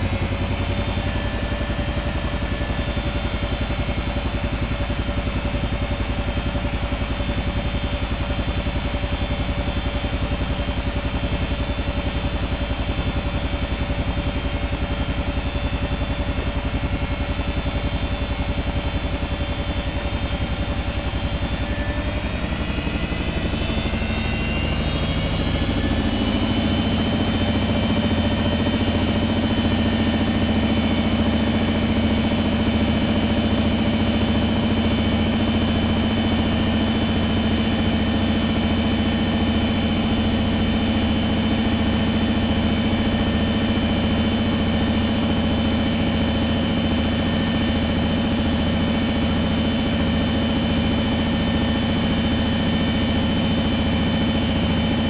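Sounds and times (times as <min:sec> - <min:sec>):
washing machine motor whine: 0:00.0 - 0:55.0.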